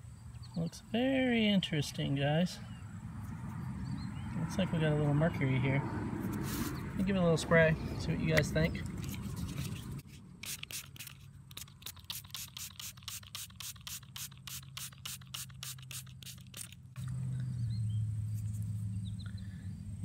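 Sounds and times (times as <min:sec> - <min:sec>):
spray bottle squirting: 0:09.0 - 0:17.0.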